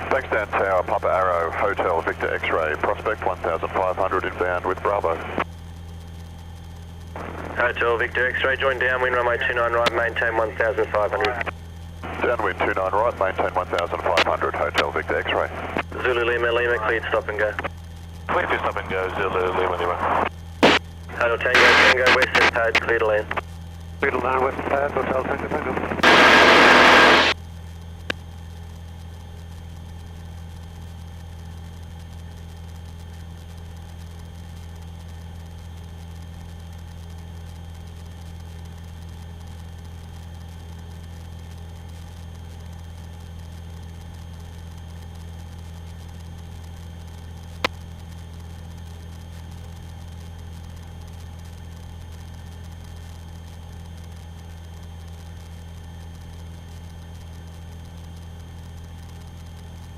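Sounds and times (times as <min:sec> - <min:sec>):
radio transmission: 0:00.0 - 0:05.5, 0:07.2 - 0:27.4
aircraft engine droning: 0:06.6 - 0:27.4.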